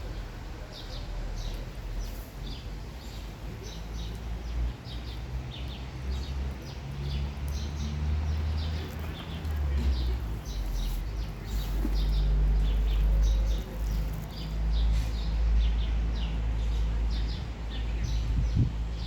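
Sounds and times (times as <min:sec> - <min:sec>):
small bird chirping: 0:06.2 - 0:15.3.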